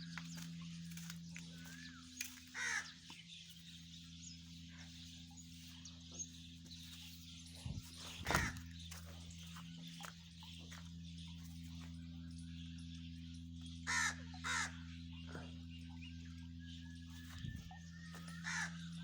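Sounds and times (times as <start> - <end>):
steady low hum: 0.0 - 19.0
crow cawing: 2.3 - 3.2, 8.2 - 8.7, 13.8 - 15.5, 18.1 - 19.0.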